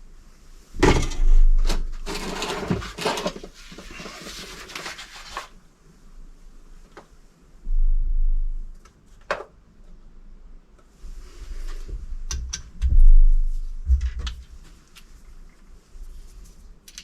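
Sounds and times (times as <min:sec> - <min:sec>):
metal parts rattling and scraping: 0:00.8 - 0:04.7.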